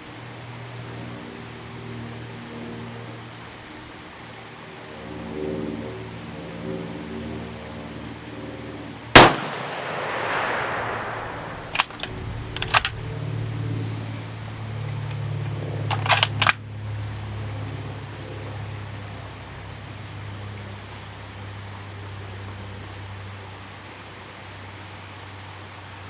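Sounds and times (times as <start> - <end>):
rifle bolt clicks: 9.2 - 13.5, 14.4 - 16.6
rifle shot echoing: 9.2 - 13.5.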